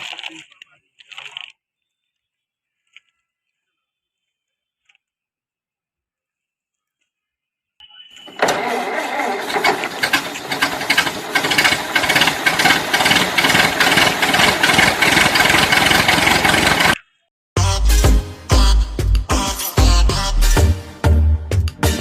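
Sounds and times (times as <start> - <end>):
toy vehicle engine running: 8.3 - 17.0.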